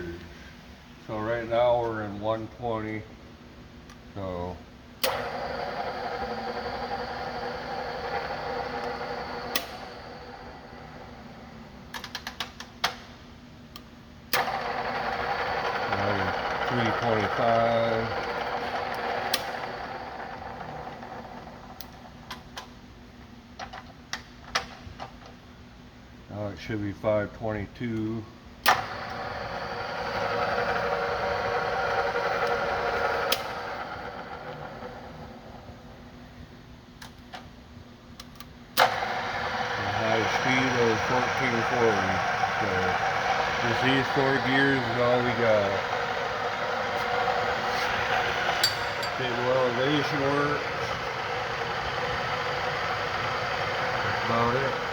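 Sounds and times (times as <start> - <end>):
drill press running and winding down: 5.0 - 11.9, 14.3 - 22.2, 28.7 - 36.1, 38.8 - 54.9.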